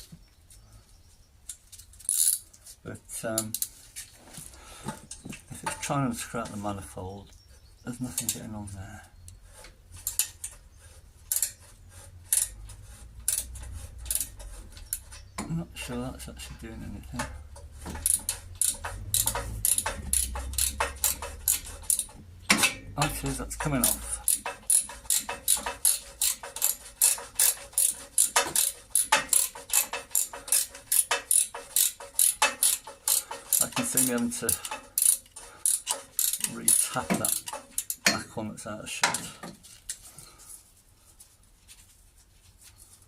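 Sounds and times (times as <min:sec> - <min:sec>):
socket ratchet clicking: 0:18.0 - 0:22.2, 0:23.8 - 0:33.7, 0:34.6 - 0:38.1.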